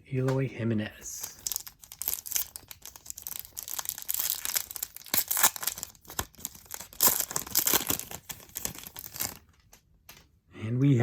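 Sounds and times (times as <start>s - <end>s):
wrapper tearing and crinkling: 1.2s - 9.5s.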